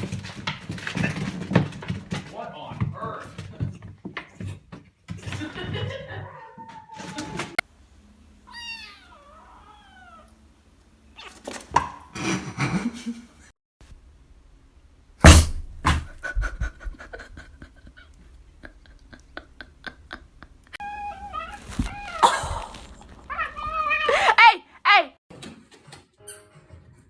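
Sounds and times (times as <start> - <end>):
cat meowing: 8.4 - 10.4, 11.1 - 11.5, 20.8 - 24.3
loud thump: 15.2 - 16.2.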